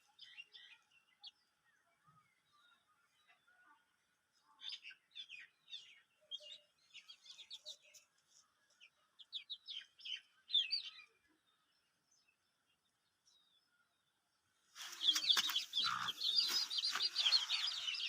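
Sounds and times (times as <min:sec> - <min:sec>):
chicks peeping: 0:14.8 - 0:18.0.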